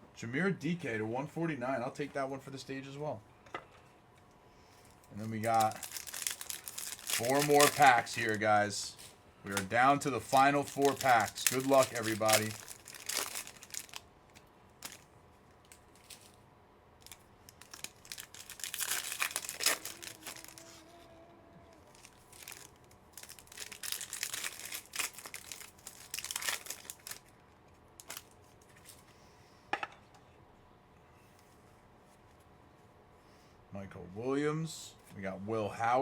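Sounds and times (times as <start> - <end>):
card pack wrappers crinkling: 4.9 - 16.4, 17.0 - 21.0, 21.9 - 27.4, 28.0 - 28.4.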